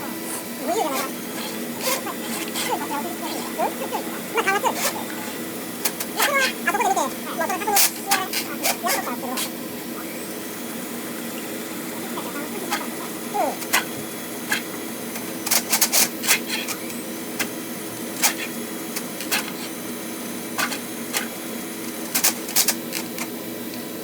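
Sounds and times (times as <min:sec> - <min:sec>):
drain rodder motor hum: 0:00.0 - 0:24.0
cable spinning in drain pipe: 0:00.2 - 0:09.1.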